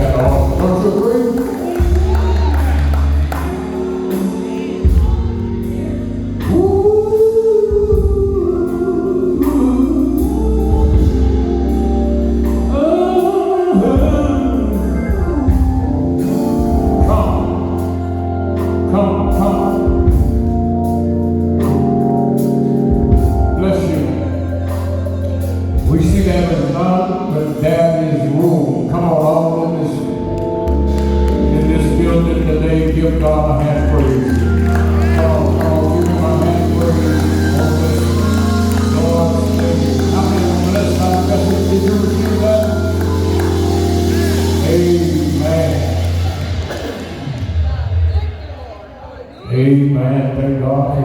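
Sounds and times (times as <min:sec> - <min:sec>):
gospel singing: 0:00.0 - 0:51.0
organ chords: 0:00.0 - 0:51.0.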